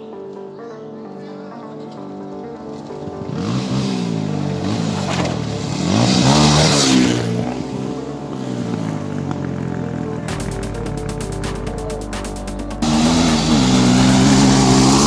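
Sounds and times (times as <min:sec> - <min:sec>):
vehicle engine revving: 0:03.0 - 0:15.0.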